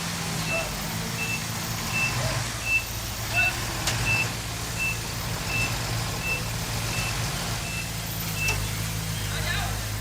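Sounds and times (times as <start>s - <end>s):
heavy machine engine running: 0.0s - 10.0s
reversing alarm beeping: 0.5s - 3.4s, 4.0s - 8.6s.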